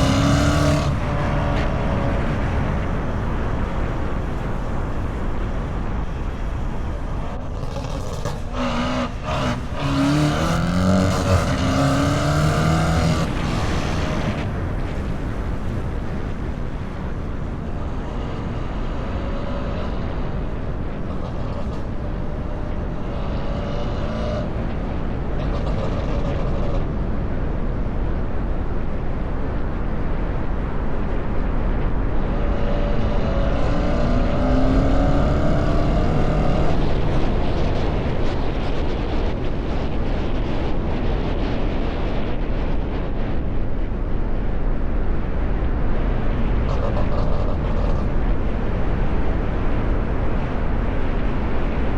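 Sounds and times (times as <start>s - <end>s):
car engine revving: 0.0s - 26.8s, 31.8s - 39.4s
road and wind noise: 0.0s - 51.9s.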